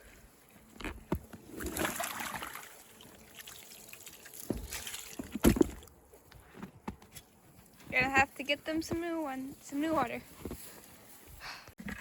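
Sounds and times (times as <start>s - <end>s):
slushy water sloshing: 1.5s - 5.9s.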